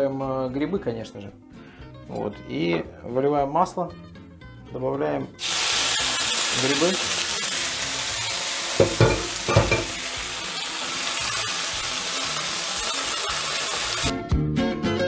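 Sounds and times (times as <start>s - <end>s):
guitar music: 4.0s - 15.0s
mushrooms sizzling in oil: 5.4s - 14.1s
spatula knocking against pan: 8.8s - 10.0s.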